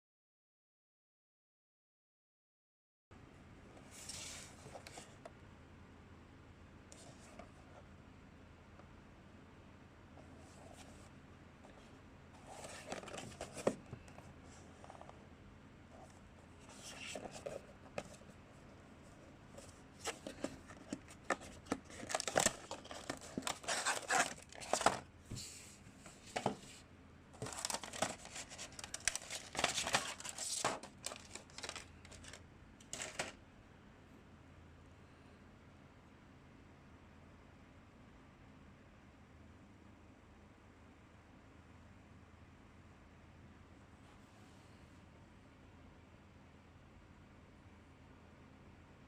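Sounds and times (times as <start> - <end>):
packaging crinkling and tearing: 21.2 - 25.0, 27.4 - 33.4.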